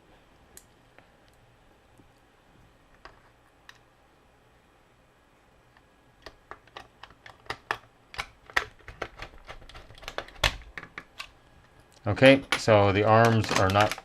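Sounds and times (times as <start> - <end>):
plastic action figure parts clicking: 13.0 - 14.0.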